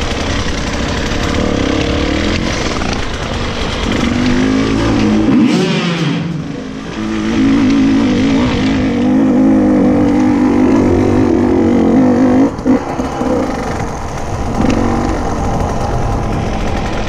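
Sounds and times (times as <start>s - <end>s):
two-stroke motorcycle engine revving: 0.0s - 17.0s.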